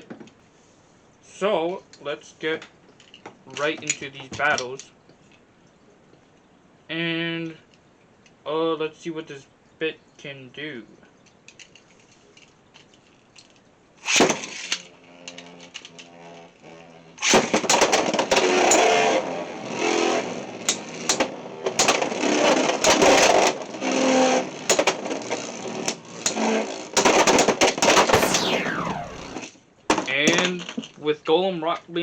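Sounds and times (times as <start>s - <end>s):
spinning top launcher snap: 28.1s - 29.4s
spinning tops clashing and screeching: 28.2s - 29.4s
spinning tops humming: 28.2s - 29.4s.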